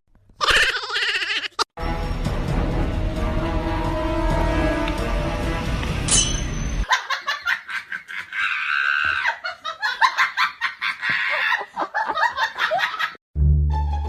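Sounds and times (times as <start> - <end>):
high-pitched laughter: 6.9 - 13.2.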